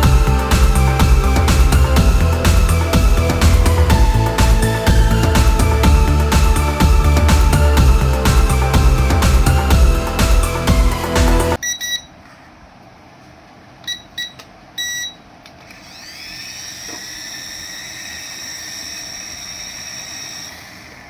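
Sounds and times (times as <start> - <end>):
short electronic beeps: 11.6 - 12.2, 13.9 - 15.2
toy electric motor whining: 15.6 - 21.0.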